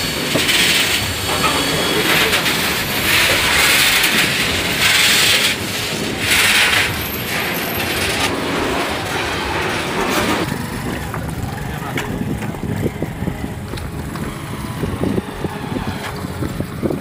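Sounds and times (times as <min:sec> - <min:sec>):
hiss: 0:00.0 - 0:08.3
freight train wheels clattering: 0:00.0 - 0:17.0.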